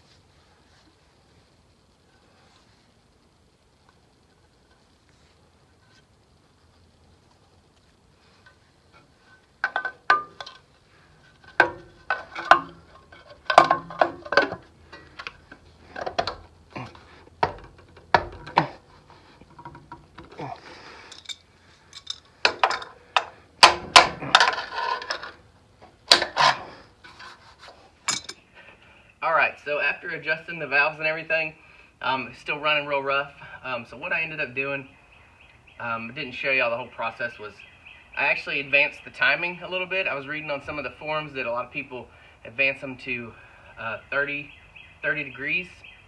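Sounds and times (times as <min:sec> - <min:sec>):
metal tools clinking: 0:09.2 - 0:25.5, 0:26.1 - 0:28.5.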